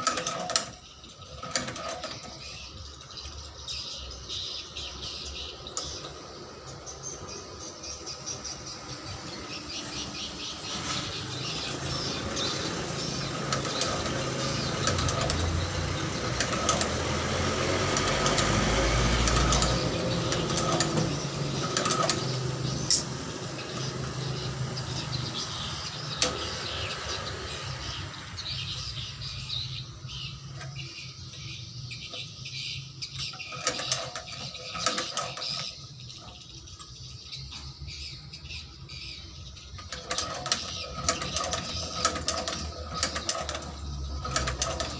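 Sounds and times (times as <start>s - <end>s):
shoe-repair machine running: 10.0s - 27.4s.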